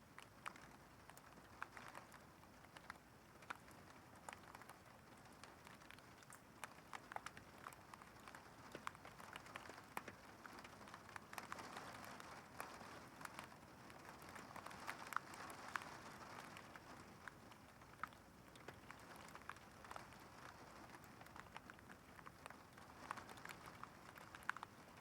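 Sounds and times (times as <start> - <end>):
rain drops ticking: 0.0 - 25.0
rain hiss: 0.4 - 25.0.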